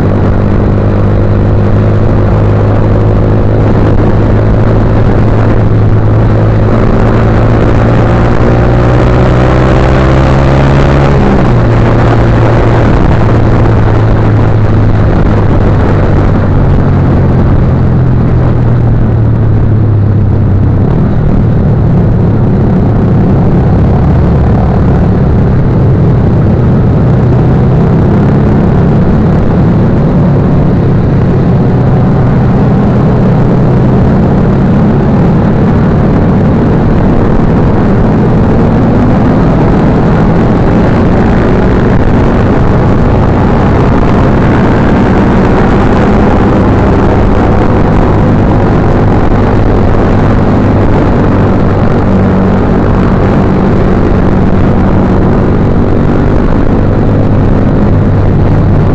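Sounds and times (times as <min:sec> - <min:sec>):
heavy rush of noise: 0:00.0 - 0:58.9
motorcycle engine revving: 0:00.0 - 0:58.9.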